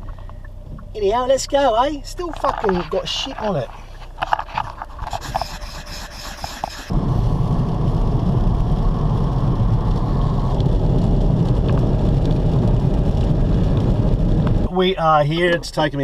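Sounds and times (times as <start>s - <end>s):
vehicle driving on road: 0.0s - 16.0s.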